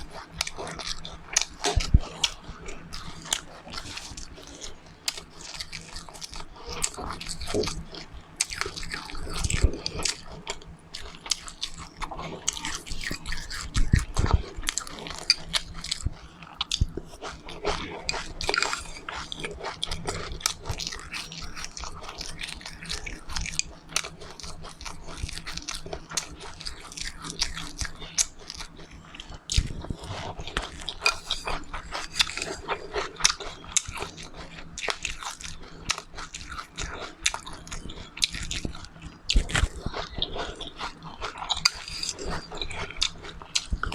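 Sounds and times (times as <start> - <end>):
person chewing crunchy seeds: 0.0 - 43.9.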